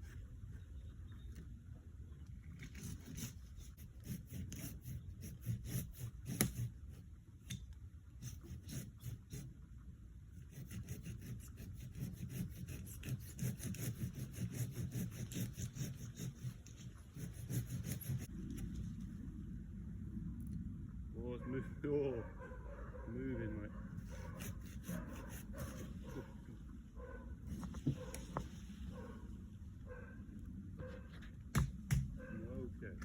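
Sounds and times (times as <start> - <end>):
hand saw cutting wood: 2.7 - 7.0, 8.2 - 9.6, 10.4 - 18.3, 24.0 - 26.2.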